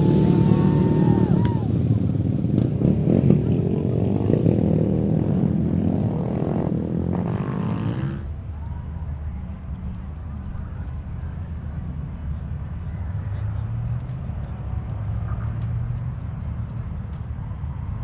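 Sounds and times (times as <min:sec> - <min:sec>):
vehicle engine passing by: 0:00.0 - 0:08.8.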